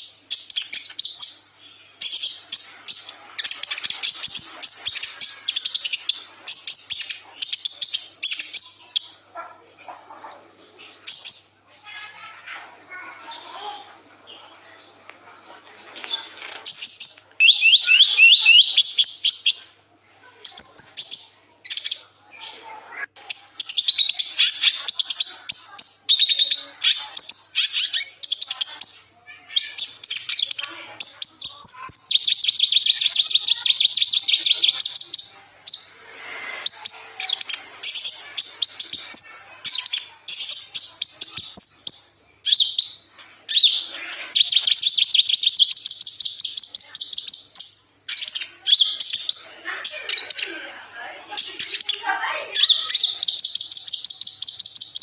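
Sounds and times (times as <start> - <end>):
sunbird twittering trills: 16.7 - 19.7.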